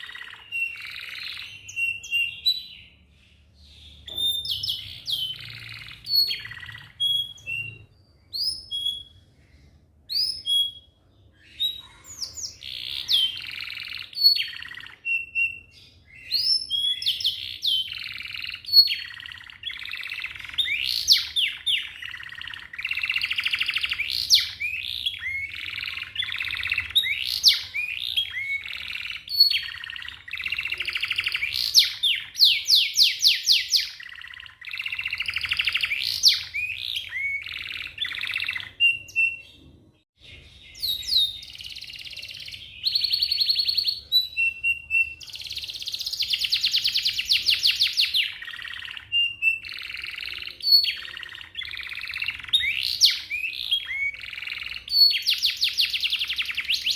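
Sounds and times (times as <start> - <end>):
canary singing trills: 0.0 - 56.9.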